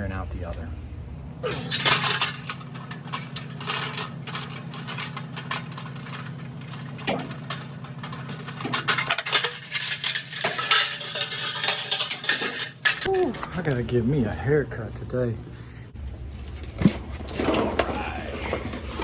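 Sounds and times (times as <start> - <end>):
steady low hum: 0.0 - 19.0
metal parts clinking and rattling: 1.4 - 13.1.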